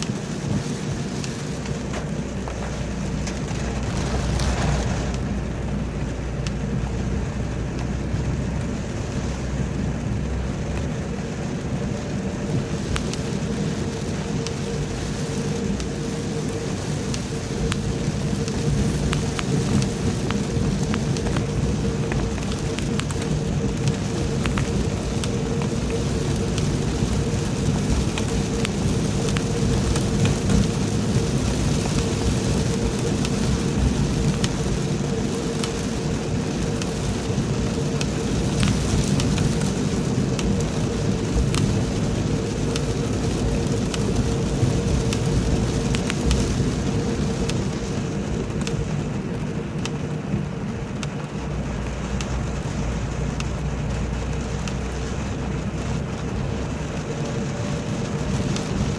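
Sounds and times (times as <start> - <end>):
heavy rain pouring: 0.0 - 58.9
low rumble: 0.0 - 58.9.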